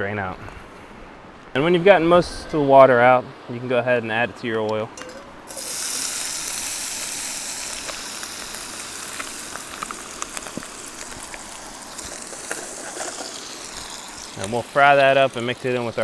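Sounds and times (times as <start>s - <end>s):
chicken sizzling in hot oil: 5.5s - 16.0s
oil crackles and pops: 5.5s - 16.0s.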